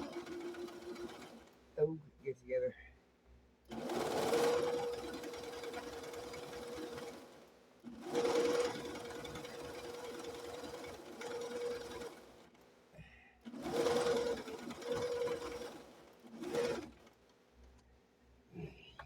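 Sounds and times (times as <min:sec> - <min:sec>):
sewing machine stitching: 0:00.0 - 0:01.8, 0:03.7 - 0:12.6, 0:13.4 - 0:17.3.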